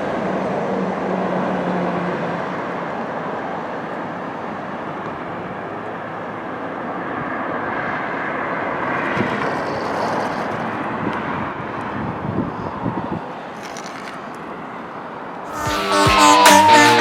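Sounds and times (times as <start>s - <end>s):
road noise: 0.0s - 17.0s
fire truck driving past: 15.5s - 17.0s.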